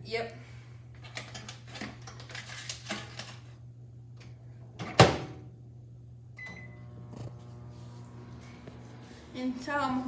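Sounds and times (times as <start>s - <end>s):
microwave door banging shut: 4.8s - 5.4s.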